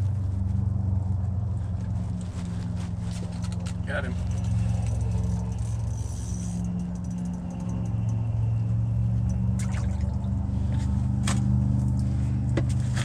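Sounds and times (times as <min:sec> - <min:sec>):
steady low hum: 0:00.0 - 0:13.0
water splashing and dripping: 0:09.5 - 0:10.3
short sharp splashes or knocks: 0:09.6 - 0:10.2.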